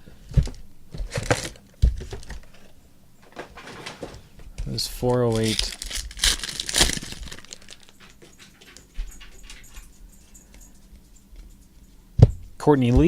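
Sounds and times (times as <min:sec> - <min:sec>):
foil wrapper crinkling: 0:01.0 - 0:02.5, 0:04.8 - 0:08.2
cards rustling and clicking: 0:04.8 - 0:08.2.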